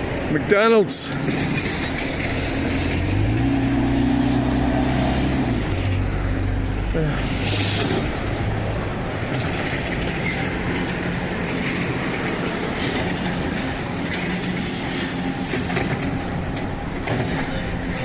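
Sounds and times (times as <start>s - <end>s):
demolition machinery rumbling: 0.0s - 18.0s
clattering and knocking: 1.1s - 3.6s, 7.5s - 18.0s.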